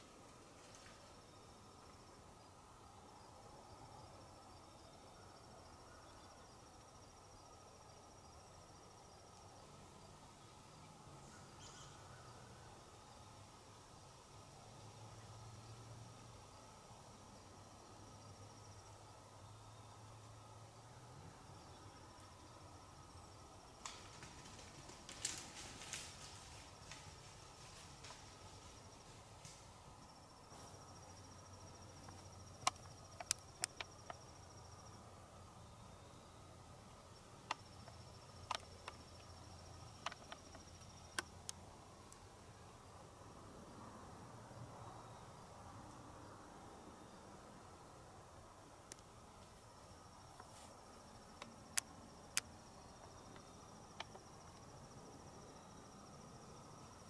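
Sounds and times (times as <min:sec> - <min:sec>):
cricket trilling: 0:00.8 - 0:57.0
sharp clicks: 0:32.0 - 0:34.2.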